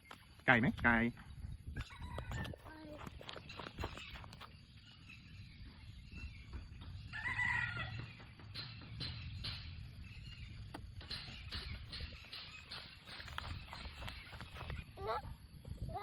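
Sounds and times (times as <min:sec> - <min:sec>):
rooster crowing: 0:01.8 - 0:02.7, 0:07.1 - 0:08.2.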